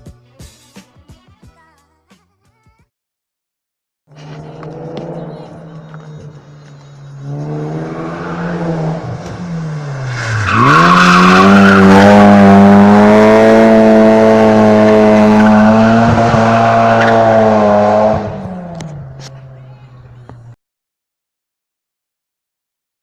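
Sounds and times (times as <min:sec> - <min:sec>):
car engine at high revs: 0:04.1 - 0:20.6
tyres squealing and skidding: 0:04.2 - 0:18.1.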